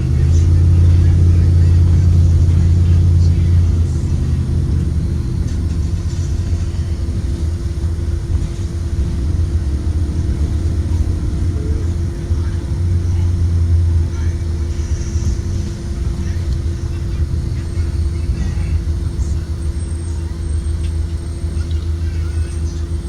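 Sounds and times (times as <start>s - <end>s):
bus engine and road drone: 0.0s - 23.0s.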